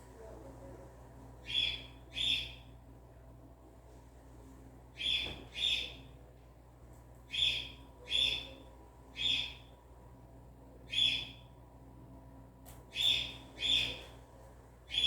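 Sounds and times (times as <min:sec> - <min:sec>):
faint low hum: 0:00.0 - 0:15.0
bird harsh calls: 0:07.3 - 0:08.5.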